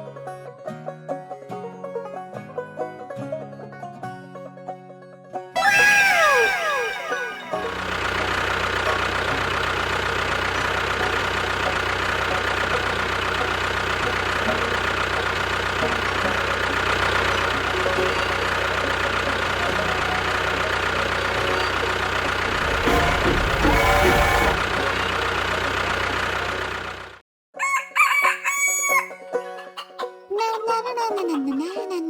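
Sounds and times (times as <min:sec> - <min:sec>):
engine idling: 0:05.8 - 0:27.2.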